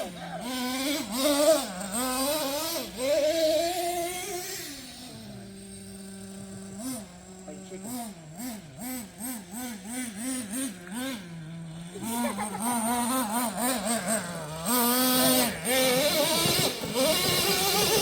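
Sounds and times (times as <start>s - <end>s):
small nitro engine revving: 0.0s - 18.0s.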